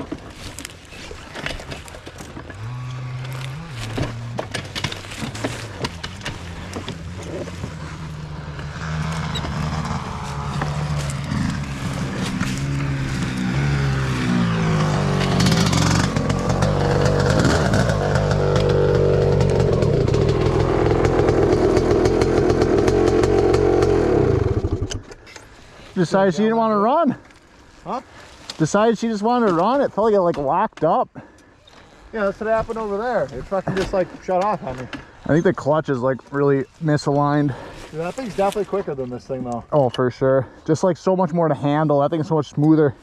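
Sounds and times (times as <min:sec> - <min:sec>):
dirt bike engine revving: 0:02.3 - 0:25.0.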